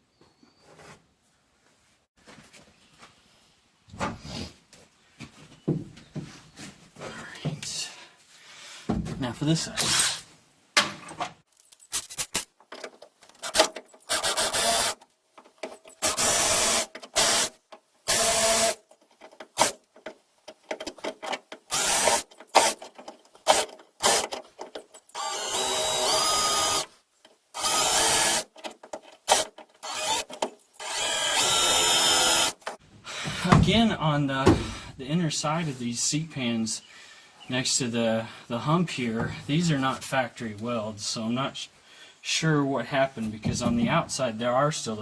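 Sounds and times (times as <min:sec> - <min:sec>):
power drill cutting sheet steel: 0:09.8 - 0:10.2, 0:13.4 - 0:15.0, 0:16.0 - 0:17.5, 0:18.1 - 0:18.8, 0:21.7 - 0:22.8, 0:25.1 - 0:26.9, 0:27.6 - 0:28.5, 0:29.3 - 0:32.6.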